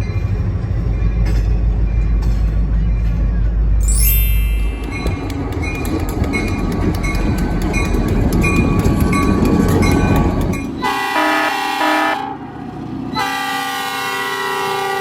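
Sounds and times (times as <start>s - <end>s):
train rumbling: 0.0s - 15.0s
wheels clicking on rail joints: 0.2s - 11.1s
train horn chord: 10.8s - 12.4s, 13.2s - 15.0s.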